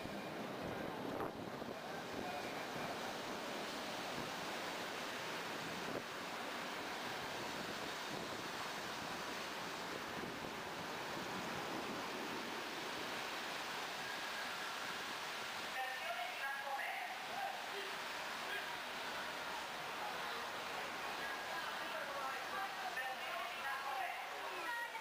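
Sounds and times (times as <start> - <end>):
wind on microphone: 0.0 - 13.2.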